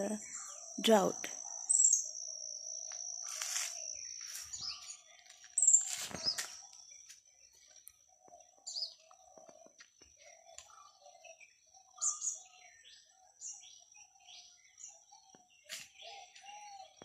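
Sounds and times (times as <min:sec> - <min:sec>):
birds chirping: 0:00.0 - 0:17.0
brief rustle: 0:05.7 - 0:06.6.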